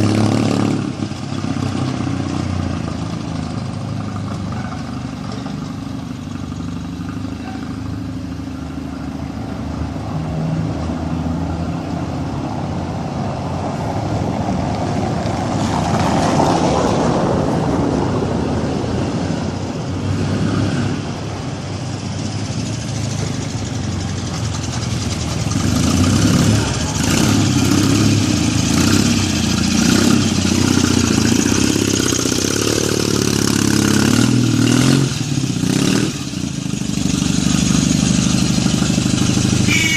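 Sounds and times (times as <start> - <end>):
motorcycle engine revving: 0.0 - 8.2, 22.3 - 39.9.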